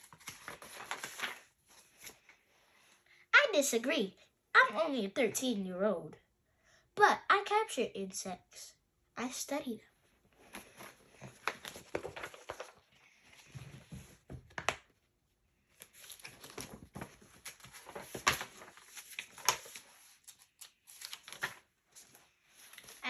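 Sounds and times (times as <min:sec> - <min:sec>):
book pages rustling and turning: 0:00.0 - 0:02.6, 0:10.2 - 0:15.0, 0:15.6 - 0:23.0.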